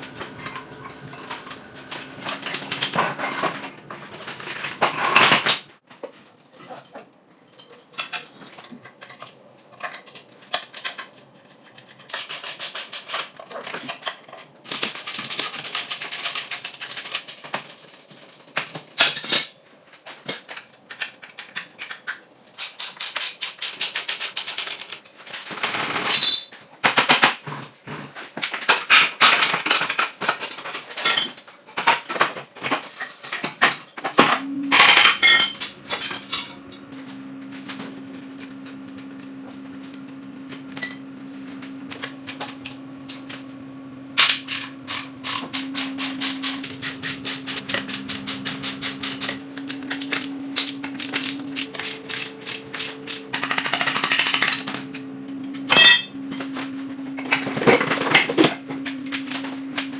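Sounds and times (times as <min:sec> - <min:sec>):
hand tools scraping metal: 0:00.3 - 0:05.5, 0:40.5 - 0:41.1, 0:44.2 - 0:55.0.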